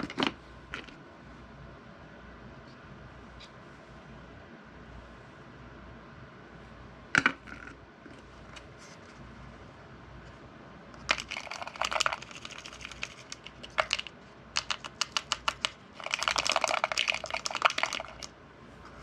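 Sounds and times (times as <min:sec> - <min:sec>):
small hard objects clicking and rattling: 0:11.0 - 0:18.3.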